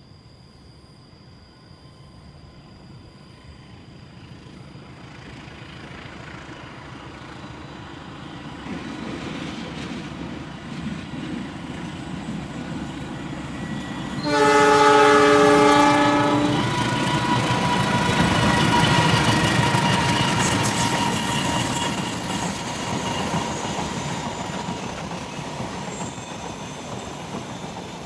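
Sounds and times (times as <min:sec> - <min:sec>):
train running noise: 0:00.2 - 0:28.0
locomotive horn chord: 0:14.2 - 0:17.0.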